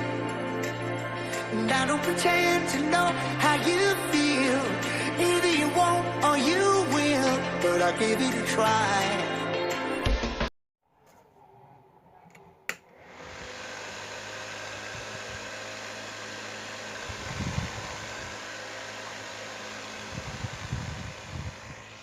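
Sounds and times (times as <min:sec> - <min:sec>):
table fan whirring: 0:12.7 - 0:22.0
air buffeting microphone: 0:19.9 - 0:22.0.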